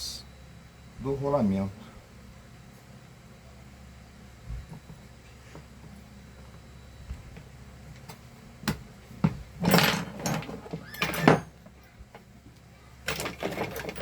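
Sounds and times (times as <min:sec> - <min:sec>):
small parts rattling: 0:13.0 - 0:14.0
scraping clatters: 0:13.1 - 0:14.0.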